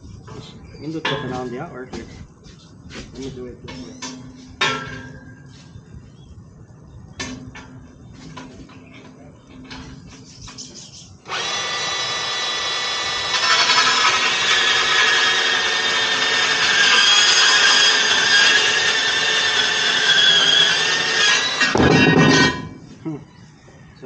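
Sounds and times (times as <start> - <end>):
band saw cutting metal: 11.3 - 22.8
clunk: 21.5 - 22.9.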